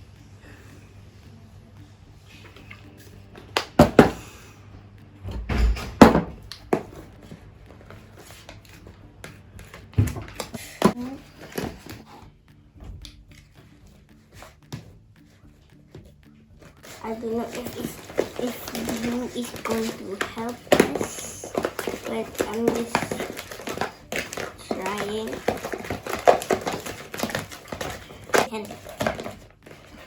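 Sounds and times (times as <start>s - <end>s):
containers and utensils clattering: 16.8s - 30.0s.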